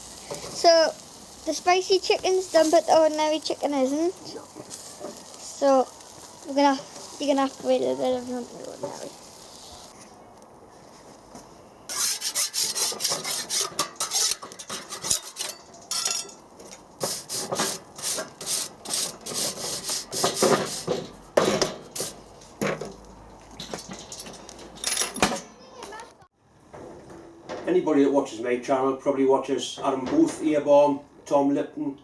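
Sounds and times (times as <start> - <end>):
rapid rasping scraping: 11.9 - 15.6.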